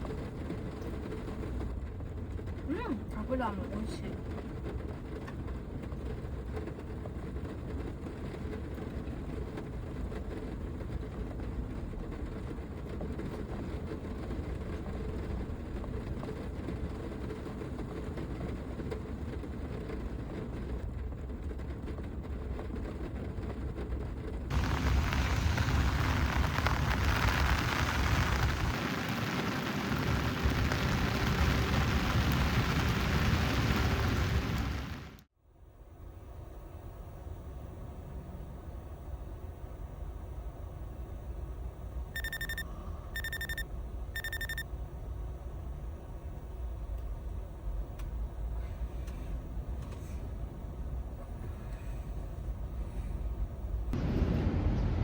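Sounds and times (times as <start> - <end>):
heavy rain on a van: 0.0 - 35.3, 53.9 - 55.0.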